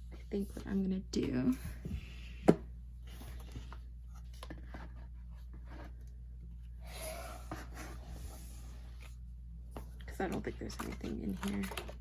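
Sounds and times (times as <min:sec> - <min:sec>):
paper and cardboard rustling: 0:09.8 - 0:12.0.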